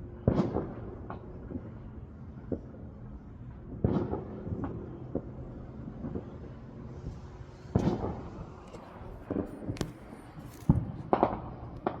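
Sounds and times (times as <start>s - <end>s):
fireworks bangs and cracks: 0.2s - 1.7s, 3.7s - 6.4s, 7.7s - 8.4s, 9.2s - 12.0s.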